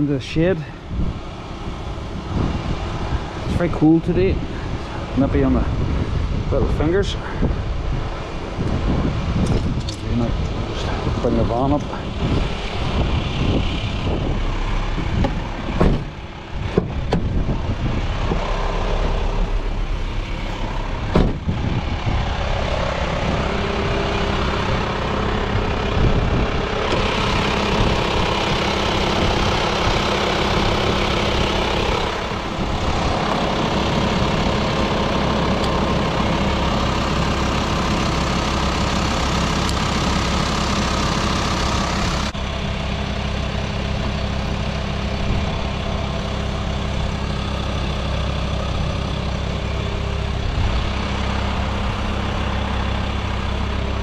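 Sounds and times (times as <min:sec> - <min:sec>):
van engine idling: 0:00.0 - 0:54.0
sharp clunks: 0:15.2 - 0:17.3, 0:21.1 - 0:21.4.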